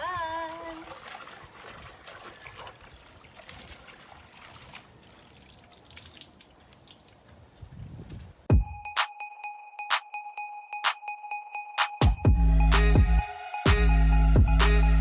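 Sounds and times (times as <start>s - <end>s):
faint water trickling: 0.0s - 8.5s
small water splashes: 0.0s - 8.5s.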